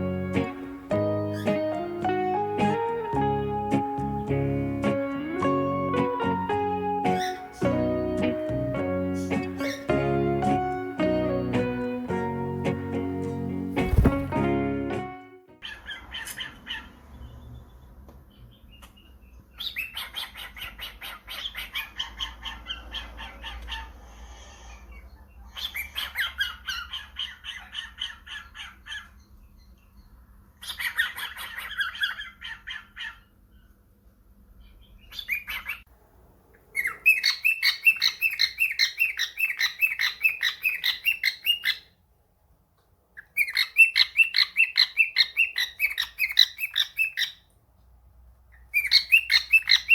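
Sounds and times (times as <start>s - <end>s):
cockatiel chirping: 7.1s - 7.6s, 35.0s - 35.8s, 36.8s - 41.9s, 43.2s - 47.4s, 48.6s - 49.9s.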